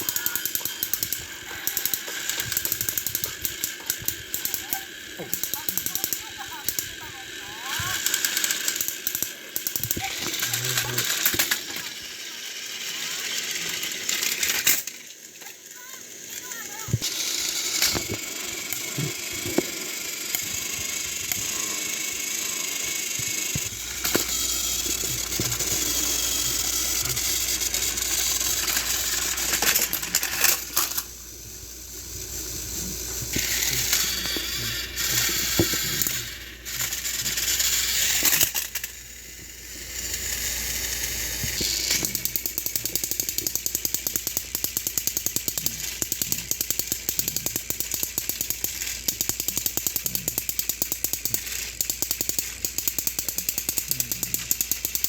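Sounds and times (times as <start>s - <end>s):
toy train clicking and rattling: 0.0s - 55.0s
toy train motors whirring: 0.0s - 55.0s.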